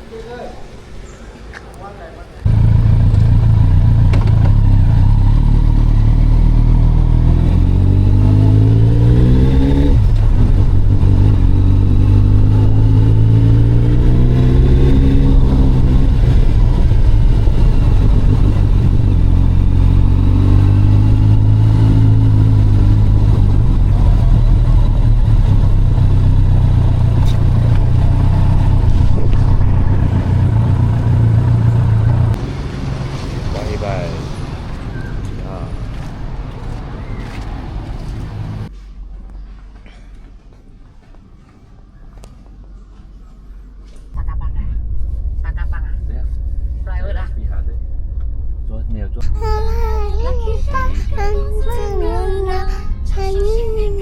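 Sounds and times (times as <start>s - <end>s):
motor engine revving: 2.4s - 38.7s.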